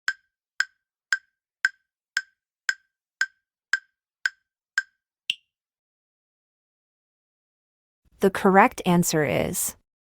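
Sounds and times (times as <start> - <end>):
timer ticking: 0.0 - 5.4.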